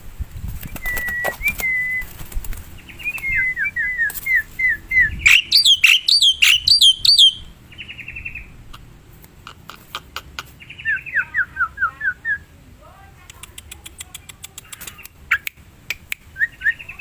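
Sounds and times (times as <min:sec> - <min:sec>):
starling whistling calls: 0:00.8 - 0:02.1, 0:03.0 - 0:08.4
buzzy bird trill: 0:02.8 - 0:08.5
sharp ringing bird notes: 0:05.2 - 0:08.4.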